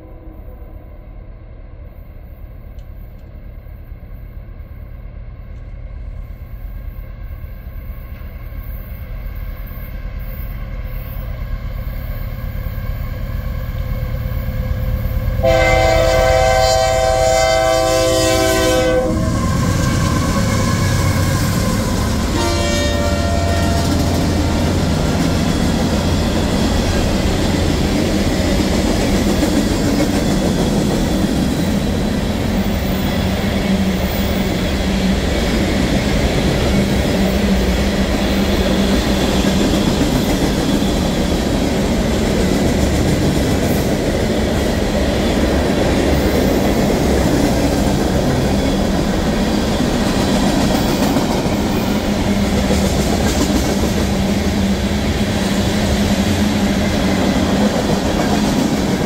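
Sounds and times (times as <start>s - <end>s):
freight train rumbling: 0.0s - 59.0s
locomotive air horn: 15.4s - 21.0s, 22.3s - 24.1s
train wheels clattering over rails: 23.4s - 59.0s.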